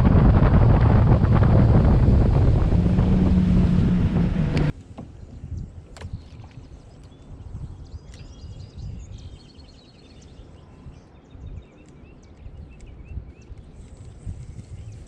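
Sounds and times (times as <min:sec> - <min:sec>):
steady low rumble: 0:00.0 - 0:04.7
birds singing and calling: 0:05.2 - 0:15.0.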